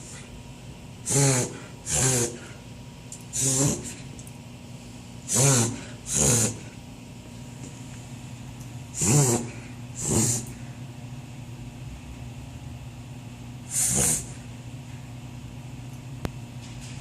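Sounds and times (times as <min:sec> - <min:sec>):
dog reverse-sneezing: 0:09.0 - 0:10.6, 0:13.7 - 0:14.4.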